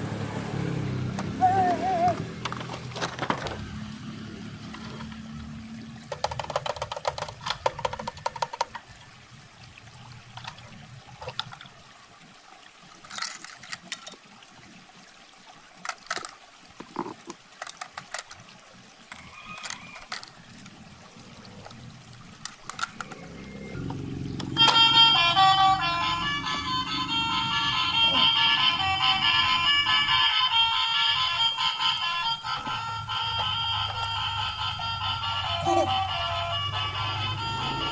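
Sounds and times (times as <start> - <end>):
knocks and rustling of packaging: 2.6 - 3.7
plastic toy clicks: 6.1 - 8.9, 13.0 - 14.2, 15.8 - 16.4, 17.0 - 18.5, 19.1 - 20.8, 22.4 - 23.3.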